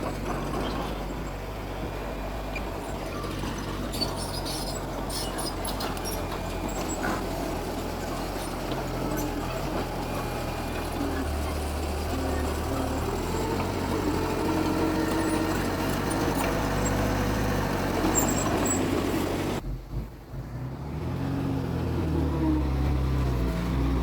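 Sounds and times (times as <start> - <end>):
heavy machinery diesel engine: 0.0 - 24.0.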